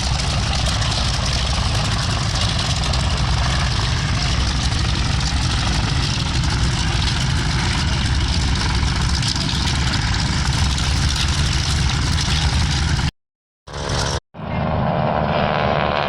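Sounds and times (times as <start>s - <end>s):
propeller aircraft engine droning: 0.0s - 13.1s, 13.7s - 16.0s.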